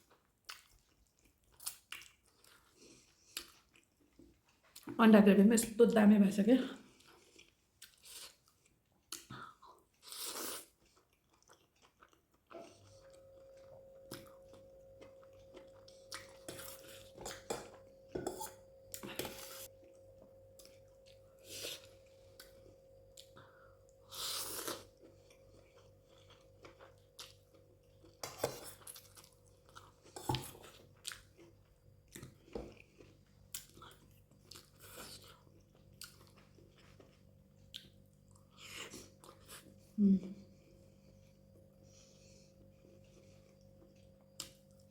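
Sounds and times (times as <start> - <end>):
person chewing food: 0.0 - 4.9, 6.9 - 44.9
steady hum with held tone: 12.5 - 30.8.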